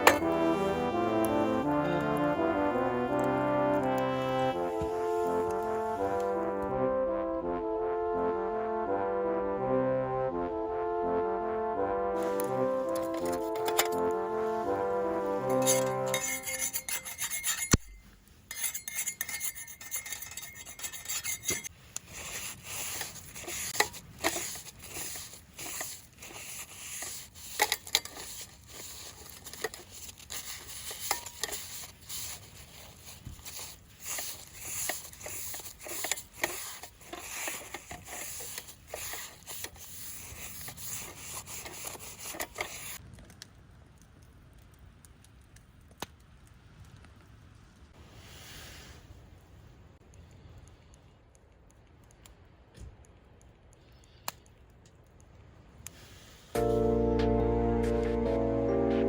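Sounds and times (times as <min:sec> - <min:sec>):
cookware and utensils clinking: 0:15.5 - 0:17.9, 0:18.5 - 0:21.7.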